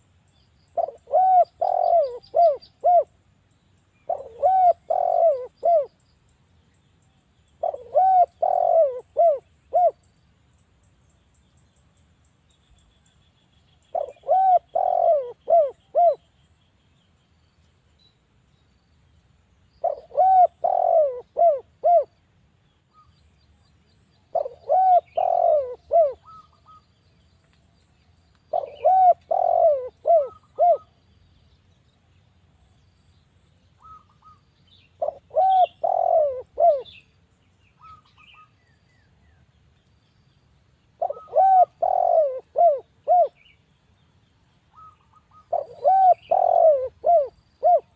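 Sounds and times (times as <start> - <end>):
dove cooing: 0.7 - 3.1, 4.1 - 6.0, 7.6 - 10.0, 13.9 - 16.2, 19.8 - 22.2, 24.3 - 26.8, 28.5 - 31.0, 33.8 - 34.4, 35.0 - 37.0, 41.0 - 43.5, 44.7 - 47.9.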